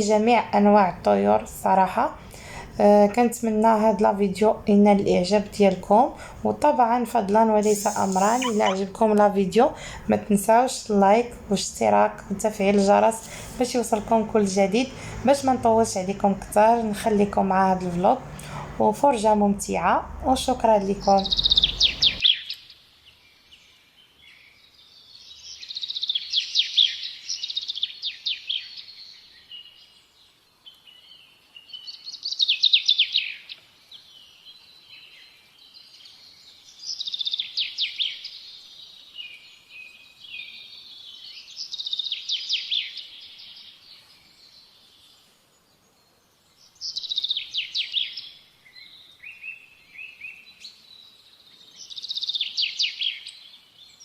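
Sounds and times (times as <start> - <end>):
songbird trilling: 7.6 - 9.0, 20.8 - 22.4.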